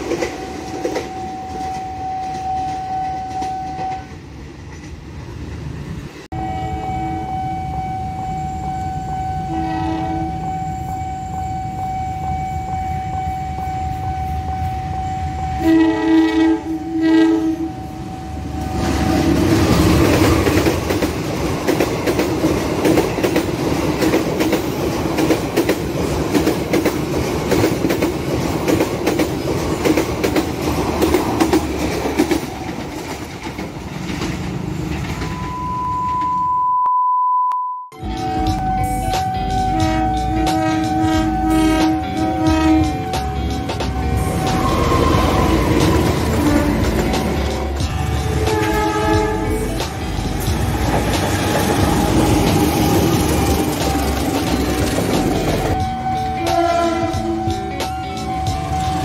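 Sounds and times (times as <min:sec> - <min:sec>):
crossing warning tone: 0:00.0 - 0:04.3, 0:06.3 - 0:21.1, 0:35.0 - 0:59.0
electronic test tone: 0:06.4 - 0:18.6, 0:35.2 - 0:45.3
locomotive horn: 0:06.4 - 0:19.1, 0:38.0 - 0:49.8, 0:55.7 - 0:59.0
train wheels clattering: 0:18.8 - 0:35.4, 0:39.2 - 0:59.0.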